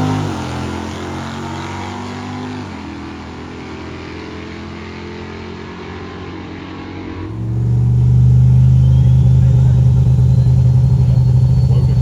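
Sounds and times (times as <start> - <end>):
car engine running: 7.1 - 12.0
loud deep engine note: 7.2 - 12.0.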